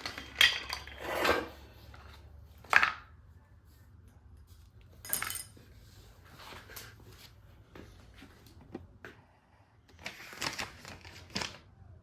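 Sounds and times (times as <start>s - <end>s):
parts clicking and knocking: 0.0s - 3.2s.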